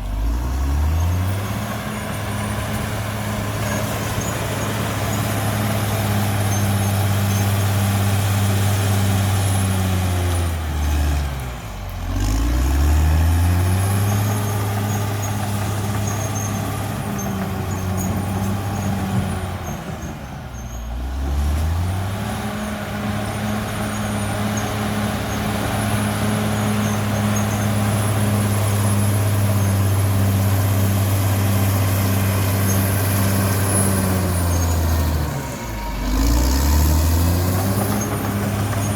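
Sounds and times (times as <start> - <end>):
bulldozer diesel engine running: 0.0 - 38.9.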